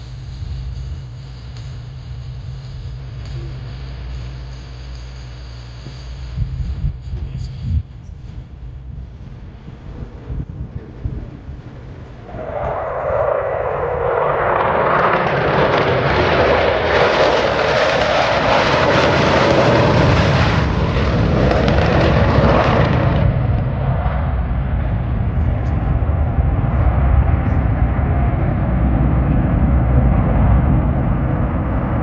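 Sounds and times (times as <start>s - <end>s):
jet roar passing overhead: 8.2s - 32.0s.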